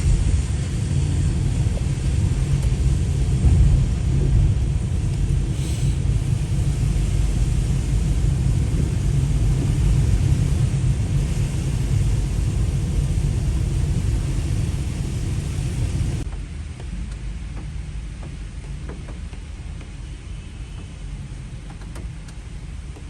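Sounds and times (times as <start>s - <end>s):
rainstorm rumble and hiss: 0.0s - 16.3s.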